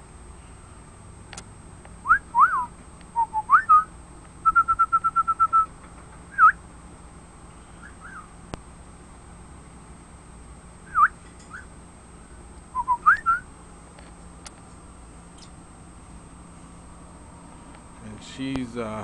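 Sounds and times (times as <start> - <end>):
pet bird whistling: 2.1 - 5.7, 6.3 - 6.6, 7.8 - 8.3, 10.8 - 11.7, 12.7 - 13.5.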